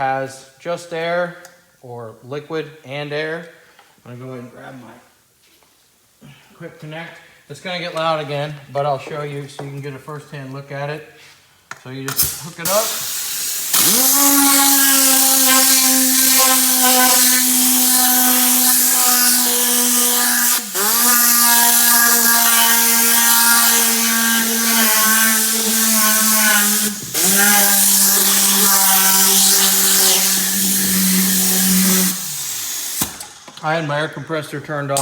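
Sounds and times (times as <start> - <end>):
pneumatic cleaning tool whine: 12.1 - 33.6.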